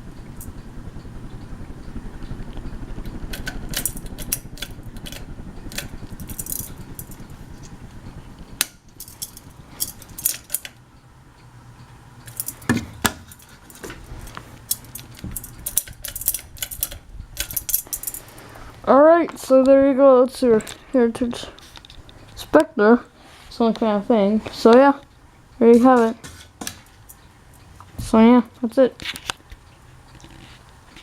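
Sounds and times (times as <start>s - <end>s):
steady low rumble: 0.0s - 30.1s
metallic clinking and jingling: 9.0s - 10.7s.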